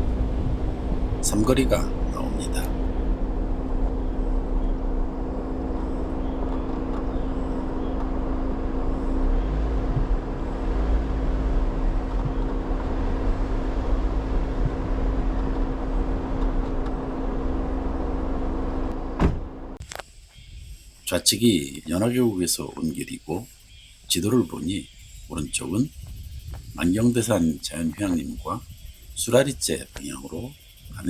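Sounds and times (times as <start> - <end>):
car engine hum: 0.0 - 20.0
low road rumble: 0.0 - 31.0.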